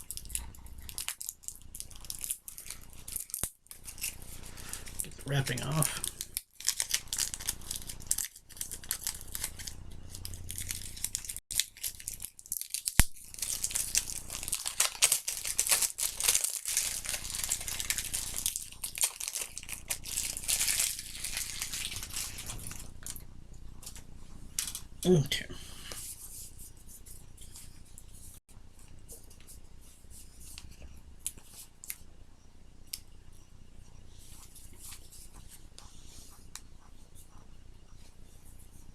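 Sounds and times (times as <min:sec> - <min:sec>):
plastic wrapping crinkling: 0:00.0 - 0:23.2.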